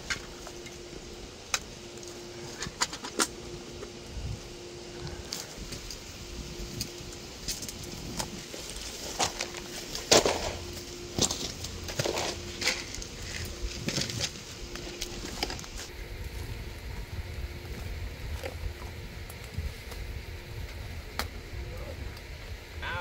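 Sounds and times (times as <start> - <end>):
low steady rumble: 0.0 - 23.0
rustling and crackling clicks: 6.7 - 15.9.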